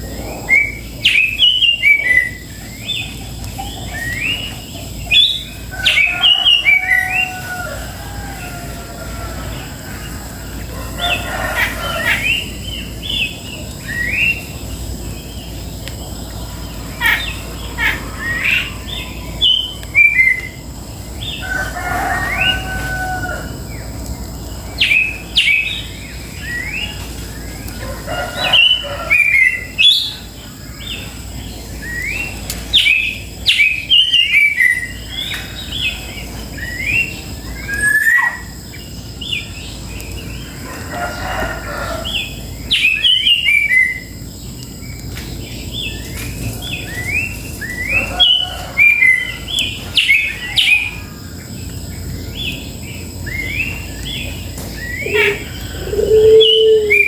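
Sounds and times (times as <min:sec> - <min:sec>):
birds chirping: 0:00.0 - 0:57.0
longer lower bird call: 0:53.3 - 0:57.0.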